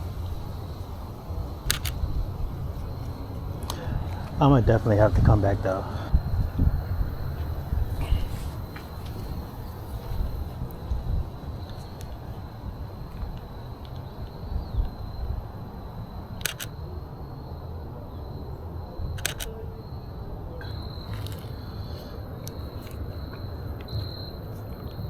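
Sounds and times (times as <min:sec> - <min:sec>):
camera shutter clicking: 0:01.6 - 0:02.1, 0:16.4 - 0:16.7, 0:19.2 - 0:19.5.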